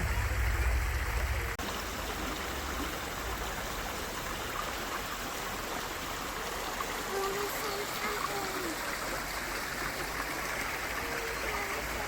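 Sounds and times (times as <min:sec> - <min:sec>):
low rumble: 0:00.0 - 0:04.5
river flowing over stones: 0:00.0 - 0:12.0.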